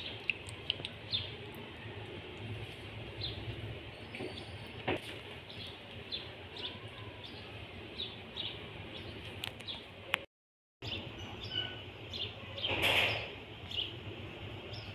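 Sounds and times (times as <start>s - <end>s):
small birds chirping: 0.0s - 1.9s, 2.6s - 10.2s, 10.8s - 14.0s.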